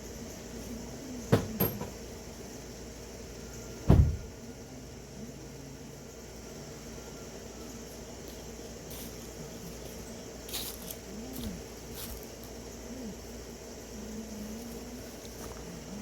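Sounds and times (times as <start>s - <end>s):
steady low hum: 0.0s - 16.0s
heavy thump: 1.3s - 2.0s, 3.9s - 4.3s
sharp knocks: 1.3s - 2.0s.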